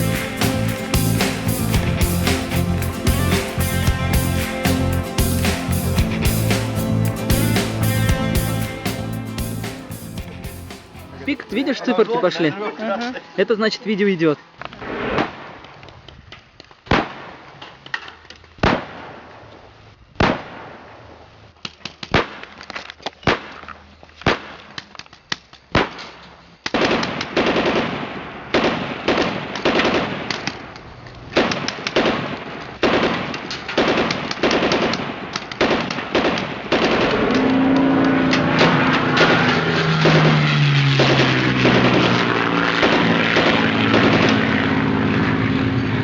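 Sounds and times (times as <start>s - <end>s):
background noise: 10.9s - 37.1s.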